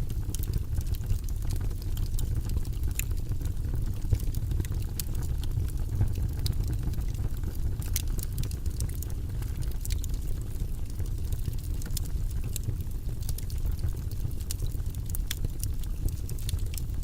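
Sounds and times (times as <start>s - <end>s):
low rumble of flames: 0.0s - 17.0s
wood fire crackling and popping: 0.0s - 17.0s.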